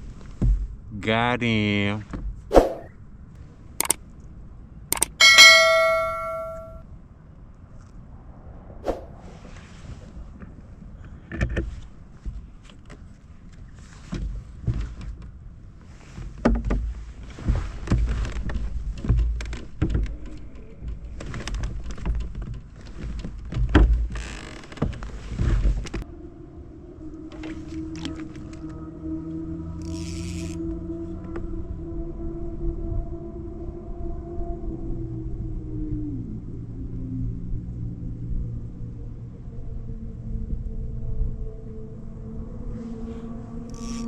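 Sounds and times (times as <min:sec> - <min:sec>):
sharp ringing knock: 0:05.0 - 0:06.8
wind rumble on microphone: 0:07.0 - 0:44.0.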